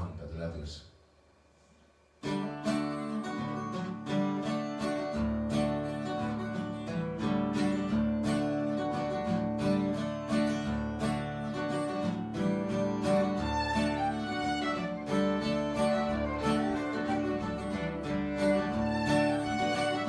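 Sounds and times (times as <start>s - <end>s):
acoustic guitar strumming: 2.2s - 20.0s
bass guitar: 12.1s - 20.0s.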